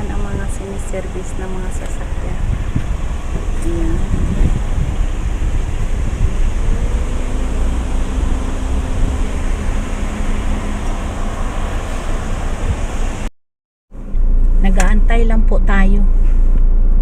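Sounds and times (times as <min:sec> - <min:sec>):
low rumble of vehicles: 0:00.0 - 0:13.3, 0:13.9 - 0:17.0
wind buffeting microphone: 0:00.0 - 0:13.3.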